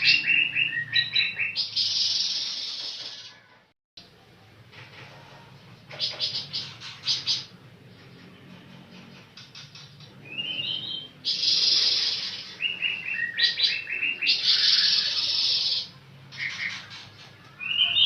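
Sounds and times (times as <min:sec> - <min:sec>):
songbird singing: 0:00.0 - 0:02.8, 0:09.0 - 0:18.0.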